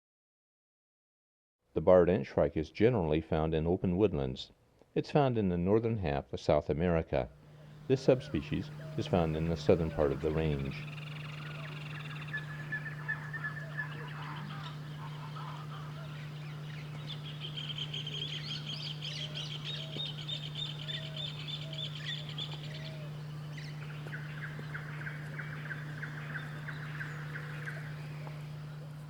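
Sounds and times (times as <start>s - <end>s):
steady low hum: 7.2s - 29.0s
birds calling: 7.4s - 29.0s.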